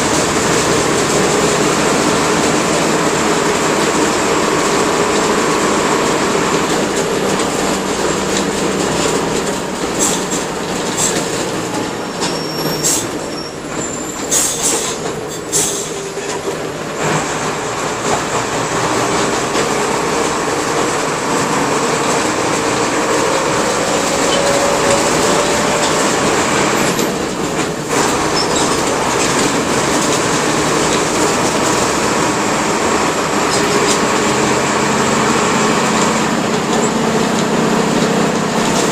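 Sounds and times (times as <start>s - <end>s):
bus engine running: 0.0s - 38.9s
road noise: 0.0s - 38.9s.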